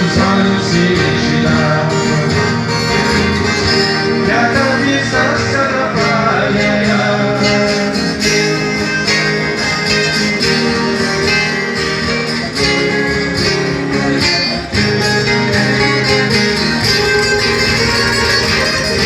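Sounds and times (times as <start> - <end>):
acoustic guitars strummed: 0.0 - 19.0
bass line: 0.0 - 19.0.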